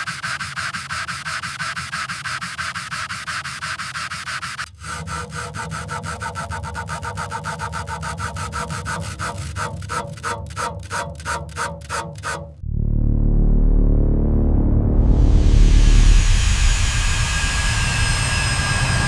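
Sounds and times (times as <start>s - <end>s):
hand scrubbing or sanding strokes: 0.0s - 12.5s.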